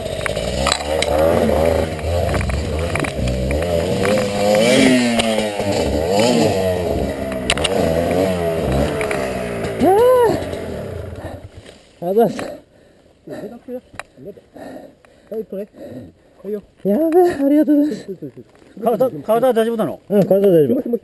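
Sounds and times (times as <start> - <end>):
dirt bike engine revving: 0.0 - 11.5.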